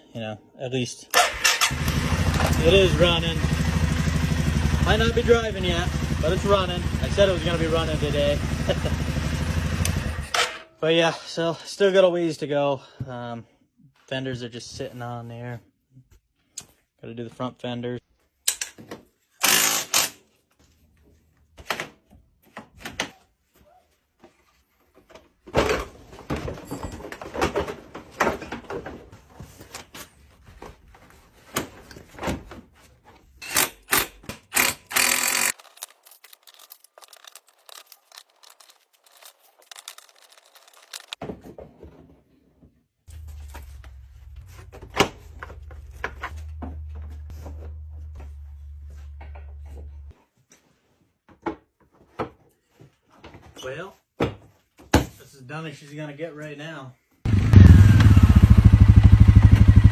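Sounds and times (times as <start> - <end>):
low hum: 43.1 - 50.1.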